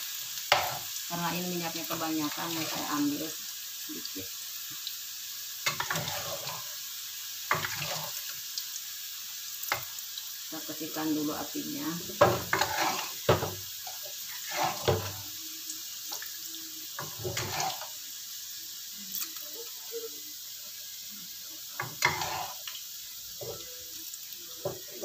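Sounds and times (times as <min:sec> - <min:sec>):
potatoes sizzling in oil: 0:00.0 - 0:25.0
metal spatula scraping pan: 0:00.5 - 0:00.9, 0:02.3 - 0:03.0, 0:05.7 - 0:06.7, 0:07.5 - 0:08.2, 0:12.2 - 0:13.5, 0:14.3 - 0:15.3, 0:17.0 - 0:18.0, 0:21.8 - 0:22.7.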